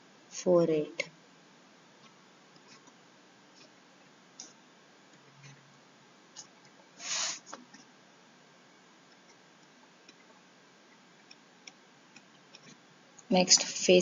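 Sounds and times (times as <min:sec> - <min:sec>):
faint clicks and ticks: 0:04.4 - 0:05.6, 0:09.1 - 0:13.8
short hiss: 0:07.0 - 0:07.6.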